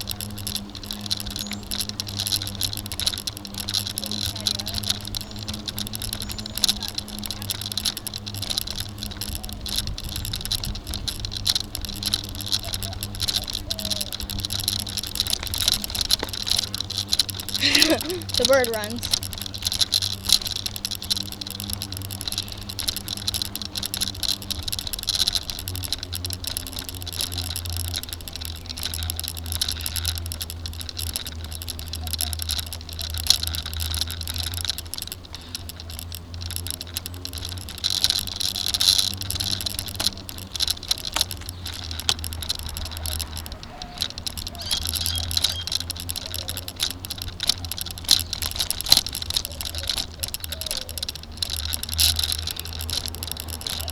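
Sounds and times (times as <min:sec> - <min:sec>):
bike road rumble: 0:00.0 - 0:53.9
rattling and clicking: 0:00.0 - 0:53.9.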